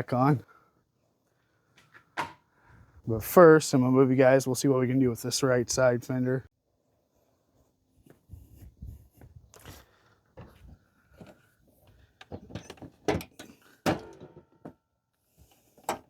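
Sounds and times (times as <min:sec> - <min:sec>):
car fender clunking and rattling: 0:12.2 - 0:14.8.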